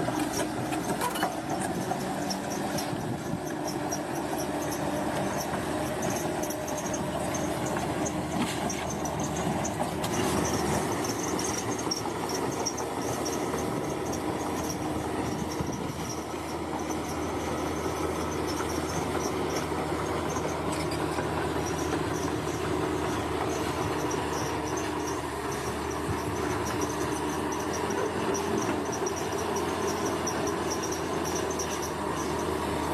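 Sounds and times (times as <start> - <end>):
bulldozer diesel engine: 0.0 - 32.9
insects chirping trill: 10.4 - 32.6.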